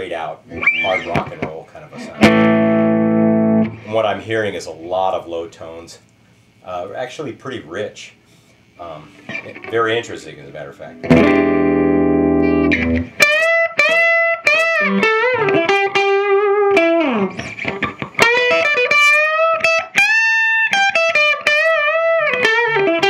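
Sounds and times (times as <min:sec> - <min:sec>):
overdriven electric guitar: 0:00.5 - 0:03.9, 0:09.1 - 0:09.8, 0:10.9 - 0:23.0.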